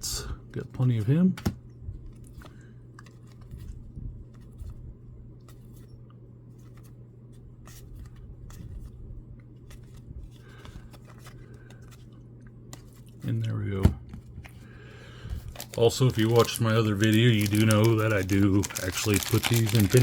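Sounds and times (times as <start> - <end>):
steady low hum: 0.0 - 20.0
cards clicking and scraping: 9.6 - 13.3, 15.4 - 20.0.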